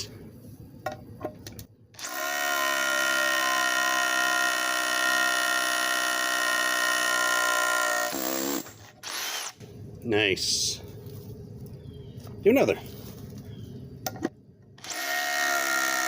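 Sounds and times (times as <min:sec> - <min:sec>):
rotary hammer drilling into concrete: 0:02.0 - 0:09.6, 0:14.8 - 0:16.0.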